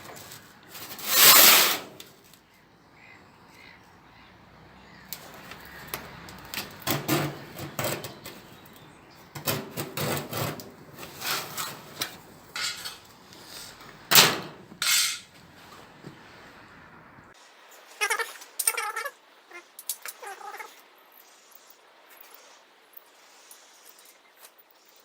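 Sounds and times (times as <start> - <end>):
steel panel scraping and knocking: 0.0 - 2.1, 5.2 - 15.4.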